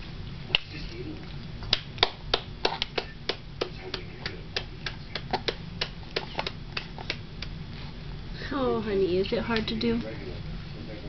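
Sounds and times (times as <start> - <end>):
hands clapping: 1.6 - 7.5.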